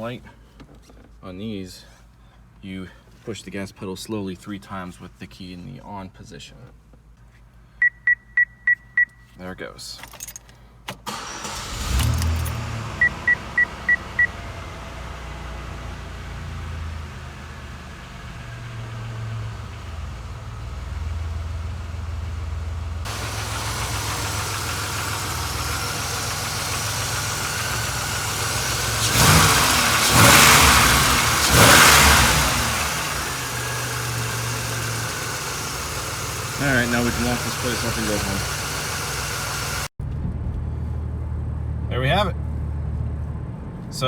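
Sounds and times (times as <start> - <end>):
car engine starting and idling: 10.0 - 44.0
engine revving: 11.1 - 39.9.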